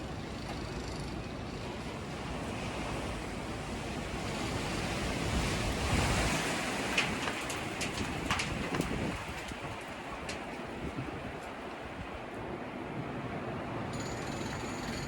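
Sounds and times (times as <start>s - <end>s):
gusty wind on microphone: 2.1s - 13.7s.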